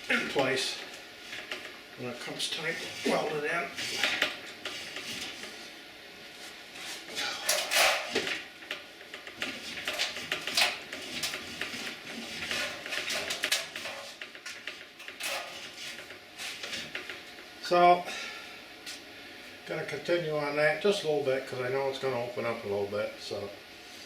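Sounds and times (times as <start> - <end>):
metal clanks and scrapes: 7.2 - 8.3, 9.4 - 16.9.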